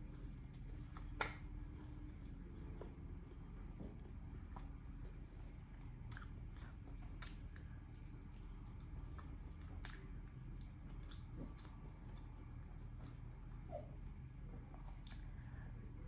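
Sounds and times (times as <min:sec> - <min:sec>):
low steady hum: 0:00.0 - 0:16.0
person chewing wetly: 0:00.0 - 0:16.0
mouth smacks and clicks: 0:00.9 - 0:01.5, 0:07.1 - 0:07.6.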